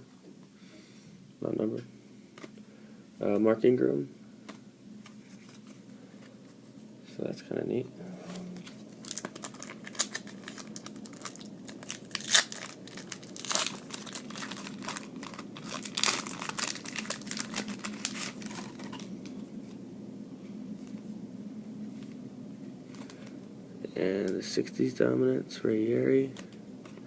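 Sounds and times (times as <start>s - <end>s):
wrapper crinkling and tearing: 8.6s - 19.3s.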